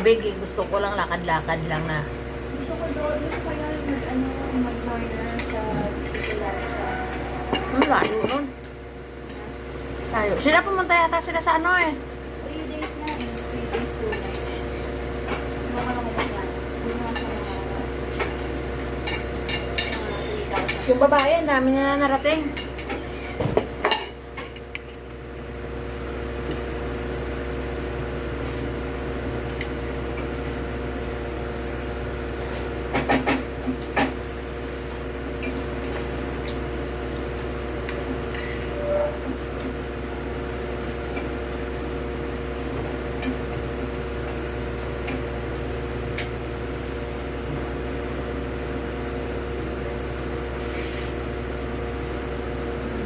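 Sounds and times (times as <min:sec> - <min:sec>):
steady mechanical hum: 0:00.0 - 0:53.0
cutlery clinking against dishes: 0:17.1 - 0:21.4.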